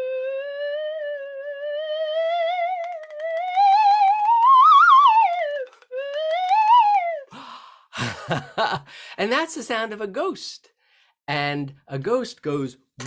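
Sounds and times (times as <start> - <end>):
slide whistle gliding: 0.0 - 7.3.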